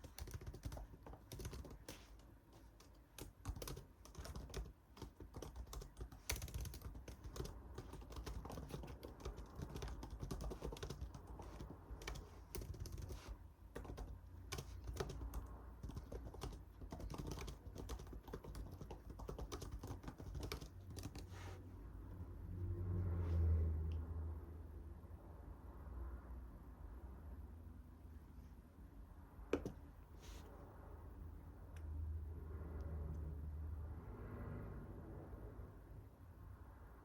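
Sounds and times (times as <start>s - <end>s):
typing on computer keyboard: 0.0s - 21.3s, 29.6s - 29.8s.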